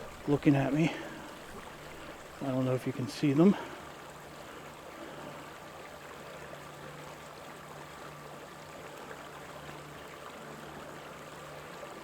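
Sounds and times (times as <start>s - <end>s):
creek flowing: 0.0s - 12.0s.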